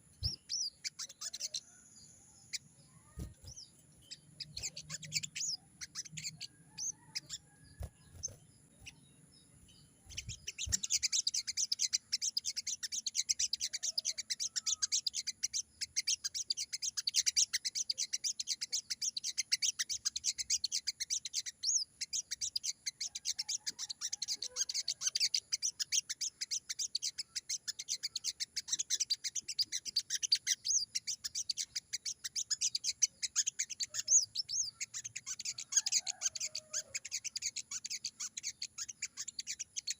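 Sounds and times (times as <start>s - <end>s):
bird twittering: 0.0s - 39.9s.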